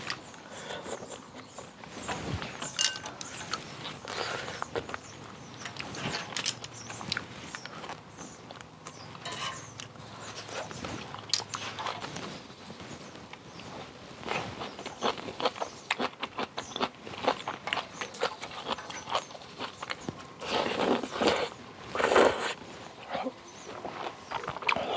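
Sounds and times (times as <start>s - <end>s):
chewing: 0.0s - 24.9s
chopsticks clicking against dish: 2.6s - 3.6s
slurping noodle soup: 20.4s - 22.6s.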